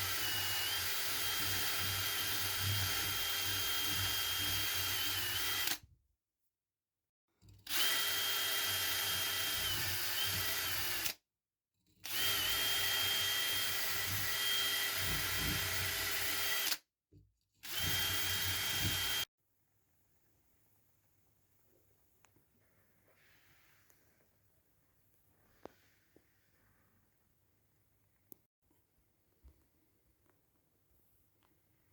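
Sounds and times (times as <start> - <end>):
electric power tool whining: 0.0 - 5.8, 12.1 - 16.8, 17.6 - 19.3.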